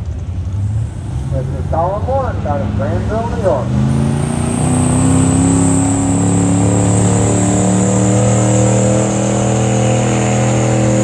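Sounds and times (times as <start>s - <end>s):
truck engine at high revs: 0.0s - 11.0s
faint high whine: 1.3s - 11.0s.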